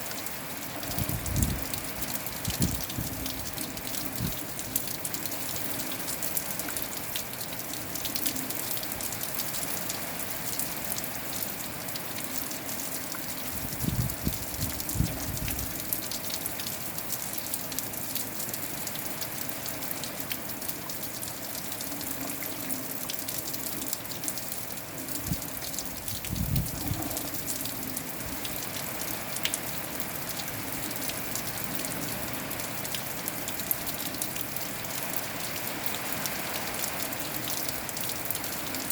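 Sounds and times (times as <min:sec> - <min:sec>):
rain pattering: 0:00.0 - 0:38.9
wind buffeting microphone: 0:00.9 - 0:01.8, 0:02.5 - 0:03.4, 0:13.6 - 0:15.7, 0:26.0 - 0:27.5.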